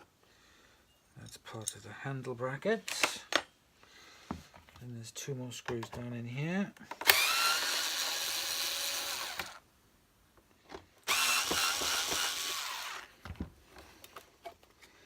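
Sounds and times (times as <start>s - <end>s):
power screwdriver whining: 7.0s - 9.6s, 11.1s - 13.2s.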